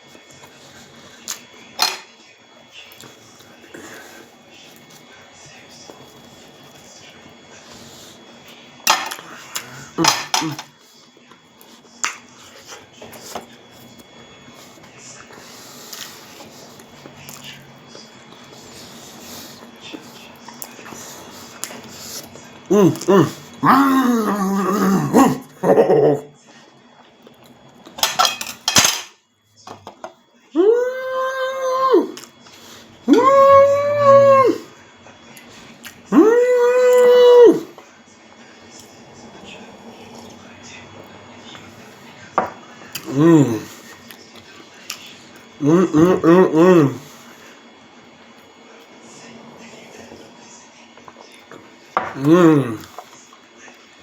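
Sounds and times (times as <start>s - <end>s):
cutlery clinking on a plate: 1.8s - 2.1s, 28.0s - 30.1s.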